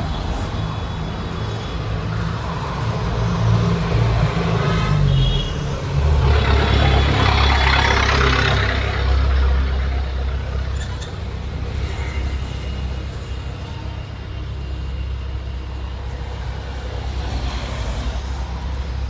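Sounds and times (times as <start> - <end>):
rushing vehicle noise: 0.0 - 19.0
vehicle engine rumble: 0.0 - 19.0.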